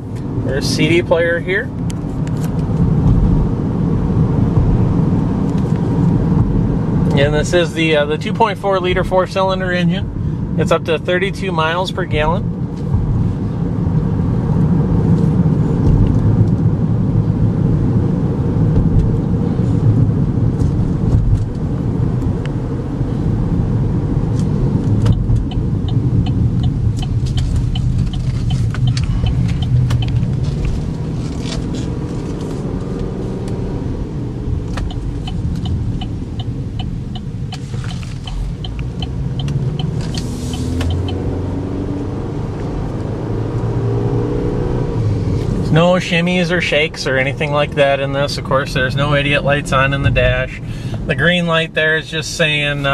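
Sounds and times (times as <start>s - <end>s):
road and engine rumble in car: 0.0s - 52.9s
quick even ticking: 25.1s - 30.8s, 34.5s - 41.3s.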